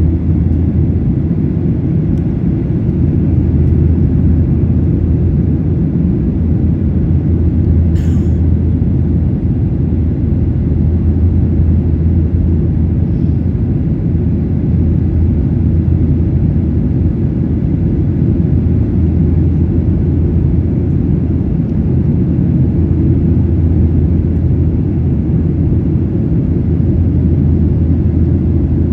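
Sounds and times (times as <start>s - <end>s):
airliner cabin engine rumble: 0.0s - 28.9s.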